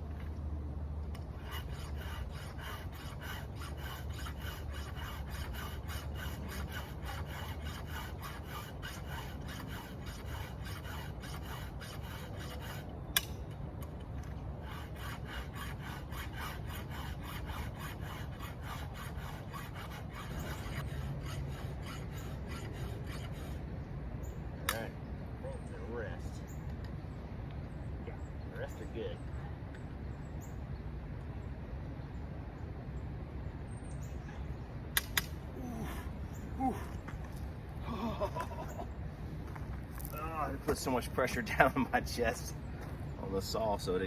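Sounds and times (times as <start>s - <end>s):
file rasping on chainsaw chain: 1.4s - 12.9s, 14.6s - 23.6s.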